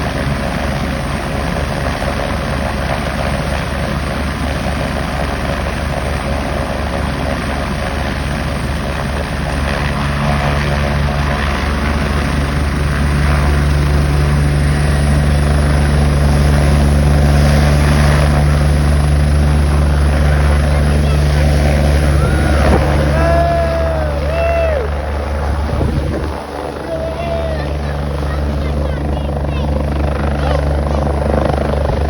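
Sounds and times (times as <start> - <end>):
helicopter engine and rotor: 0.0 - 32.0
high turbine whine: 12.7 - 32.0.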